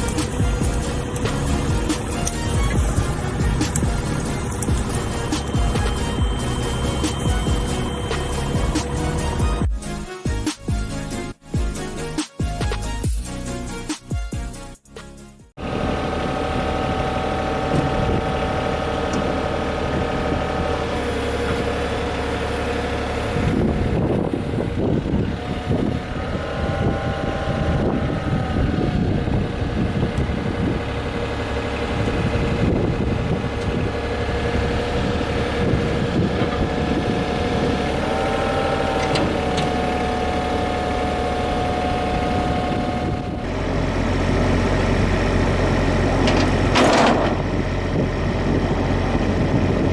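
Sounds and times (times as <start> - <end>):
rattling noise: 0.0 - 11.3, 46.2 - 47.6
excavator diesel engine whining: 0.0 - 13.9, 15.6 - 49.9.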